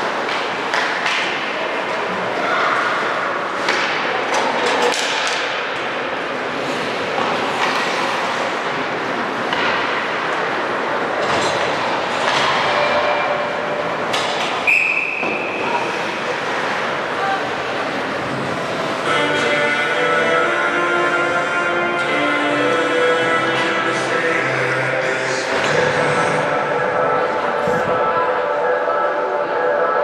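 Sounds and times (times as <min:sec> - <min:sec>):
sticks and puck clacking: 0:00.0 - 0:10.5, 0:11.2 - 0:22.9
steady ice arena background noise: 0:00.0 - 0:30.0
skates scraping ice: 0:03.6 - 0:10.8, 0:11.4 - 0:26.5.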